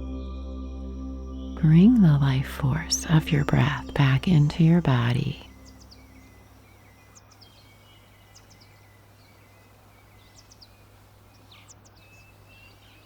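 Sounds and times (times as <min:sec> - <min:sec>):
low steady hum: 0:00.0 - 0:13.0
faint bird chirps: 0:01.4 - 0:13.0.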